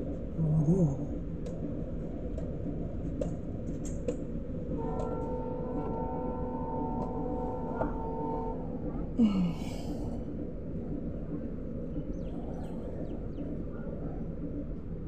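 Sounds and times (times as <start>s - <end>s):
train wheels rumbling on track: 1.0s - 9.2s
train horn chord: 4.7s - 8.8s.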